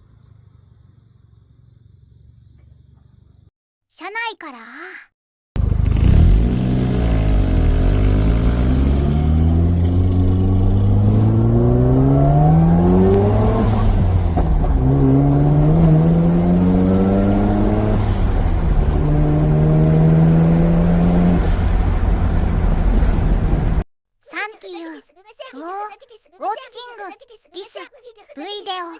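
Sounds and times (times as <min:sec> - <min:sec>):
rotary engine accelerating: 0:05.6 - 0:23.8.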